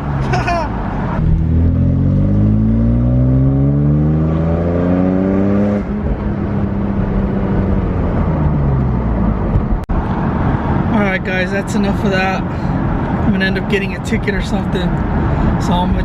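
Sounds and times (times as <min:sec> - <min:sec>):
car engine accelerating hard: 0:00.0 - 0:10.9.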